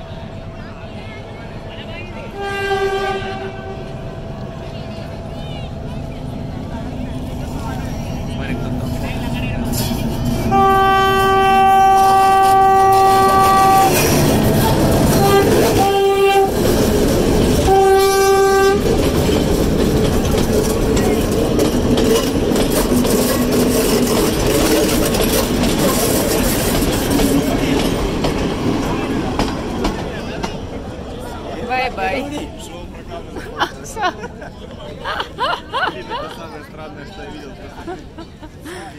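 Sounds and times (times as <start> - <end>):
train wheels rumbling on rails: 0.0 - 38.9
locomotive horn blasts: 2.3 - 4.0, 10.5 - 14.4, 15.1 - 16.7, 17.6 - 19.0.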